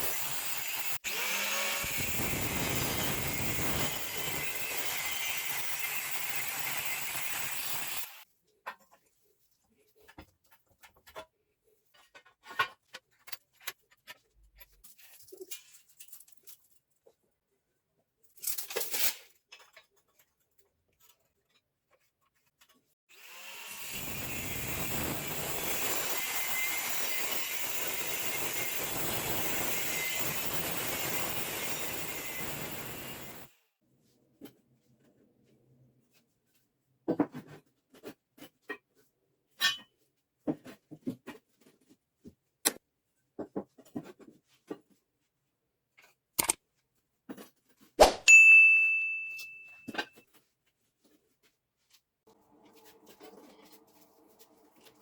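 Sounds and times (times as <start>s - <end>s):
electric motor machine running: 0.0s - 8.2s, 23.2s - 33.5s.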